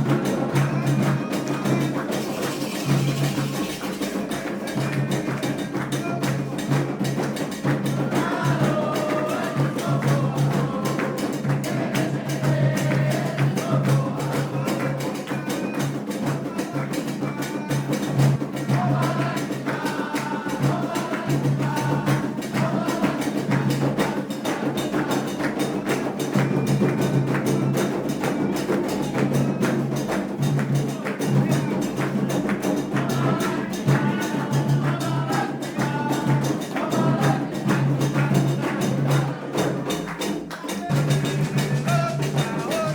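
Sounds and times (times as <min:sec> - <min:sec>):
fast drumming: 0:00.0 - 0:42.9
voices singing: 0:00.0 - 0:42.9.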